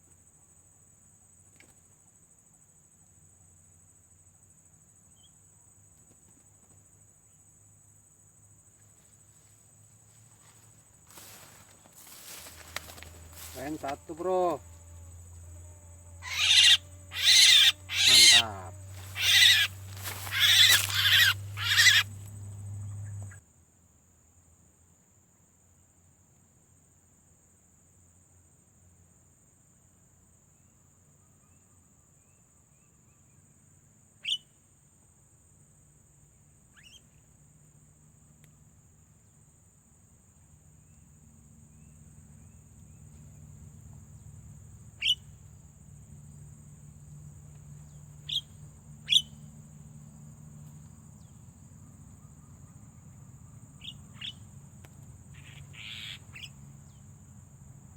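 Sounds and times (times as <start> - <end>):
loud harsh bird calls: 16.2 - 22.3, 45.0 - 45.2, 48.2 - 49.4, 55.4 - 56.5
faint bird chirps: 16.2 - 23.4, 34.2 - 34.6, 36.7 - 37.3, 44.9 - 45.4, 47.8 - 49.5, 53.5 - 54.5, 55.3 - 57.0.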